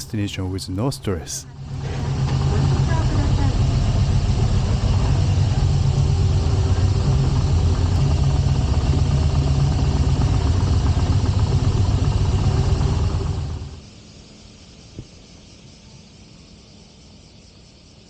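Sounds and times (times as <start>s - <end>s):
motorcycle engine rumbling: 0.0s - 13.8s.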